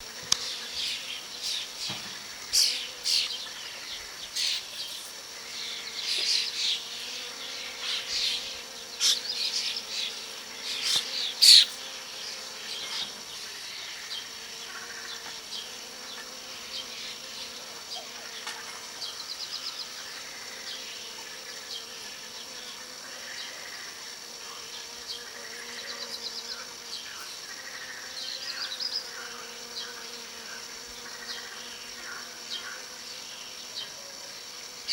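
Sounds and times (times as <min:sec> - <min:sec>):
birds chirping: 0:00.0 - 0:20.9
high-pitched insect chorus: 0:00.0 - 0:34.9
insects buzzing: 0:00.0 - 0:34.9
bird trills: 0:00.8 - 0:03.3, 0:10.8 - 0:11.8.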